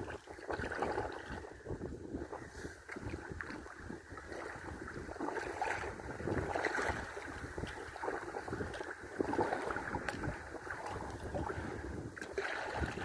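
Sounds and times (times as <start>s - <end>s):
water splashing against kayak: 0.0s - 13.0s
wind buffeting microphone: 0.0s - 13.0s.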